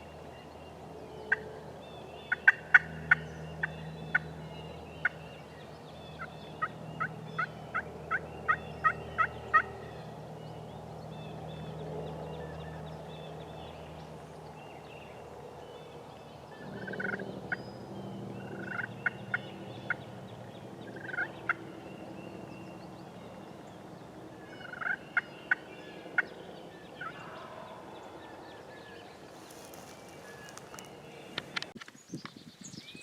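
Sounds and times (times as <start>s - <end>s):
turkeys gobbling: 2.3s - 4.2s, 6.2s - 9.8s, 16.7s - 17.2s, 18.5s - 20.0s, 20.9s - 21.6s, 24.5s - 25.6s.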